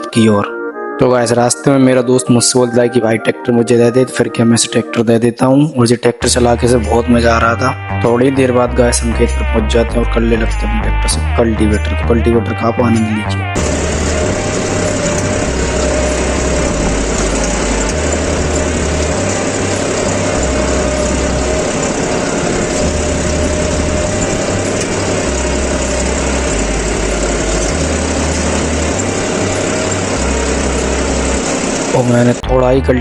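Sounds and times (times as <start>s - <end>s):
tractor diesel engine under load: 13.6s - 33.0s.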